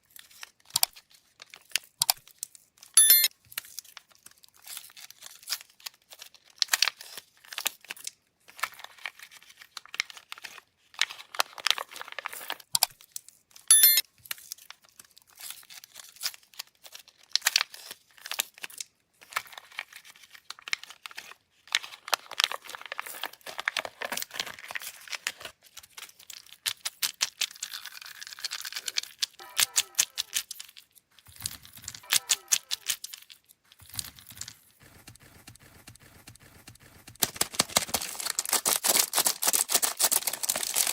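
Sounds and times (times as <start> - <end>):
brief squeak: 3.0 - 3.3, 13.7 - 14.0
plastic wrappers crinkling and tearing: 3.5 - 13.4, 14.2 - 34.8, 37.2 - 40.9.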